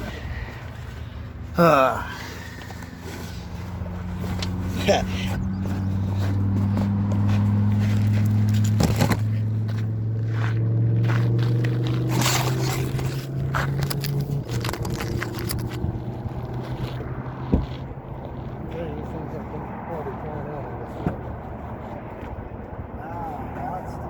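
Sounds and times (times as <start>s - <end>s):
car engine low hum: 0.0s - 24.0s
scraping and rustling: 11.2s - 18.5s.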